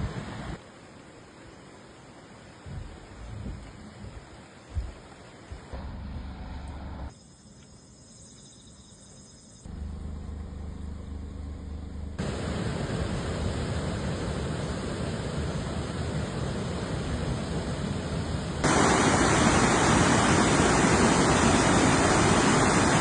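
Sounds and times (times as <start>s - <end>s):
wind and rain roar on microphone: 0.0s - 5.9s, 12.2s - 23.0s.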